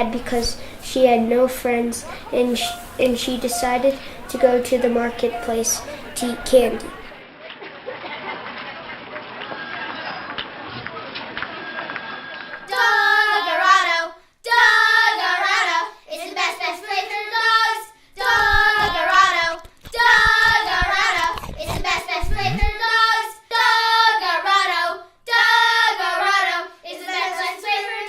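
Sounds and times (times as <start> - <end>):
child singing: 0.0 - 7.1, 12.7 - 28.0
low thumps: 18.2 - 22.8.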